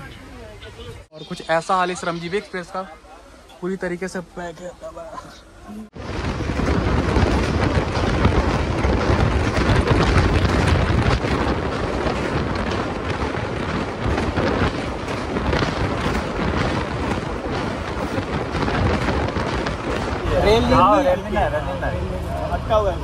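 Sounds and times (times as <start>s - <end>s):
train wheels rumbling over bridge: 5.9s - 23.0s
wind buffeting microphone: 5.9s - 23.0s.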